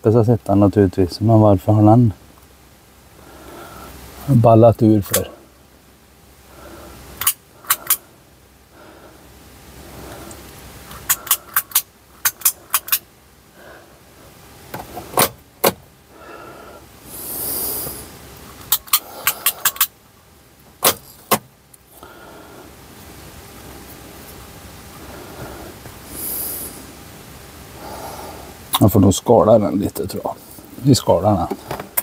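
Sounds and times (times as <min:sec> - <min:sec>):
clicks of handling wiring connectors: 0:07.2 - 0:08.0, 0:10.3 - 0:13.0, 0:18.6 - 0:19.9
short hiss: 0:17.1 - 0:18.2, 0:26.0 - 0:27.0.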